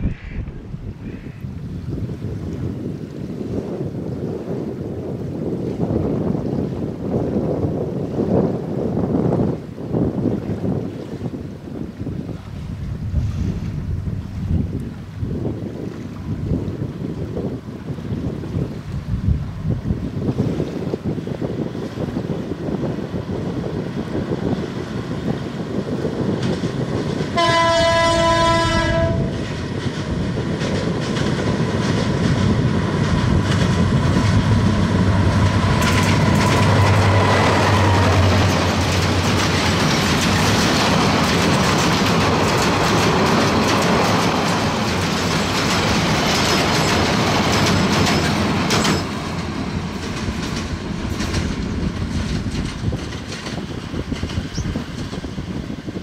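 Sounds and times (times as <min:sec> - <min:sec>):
train rumble: 0:00.0 - 0:02.8, 0:16.1 - 0:56.0
locomotive engine hum: 0:16.1 - 0:56.0
locomotive horn: 0:27.3 - 0:29.5
wheels clattering over rail joints: 0:29.4 - 0:55.7.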